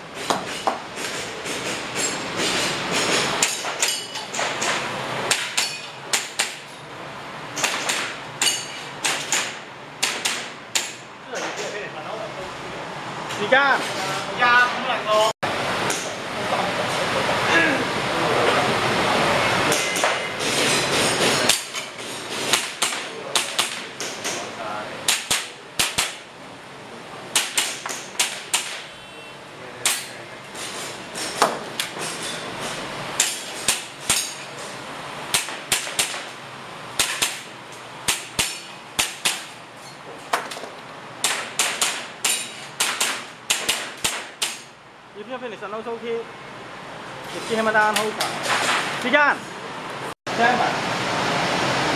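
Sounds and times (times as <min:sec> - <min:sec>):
airsoft gun shots: 0:42.8 - 0:44.6.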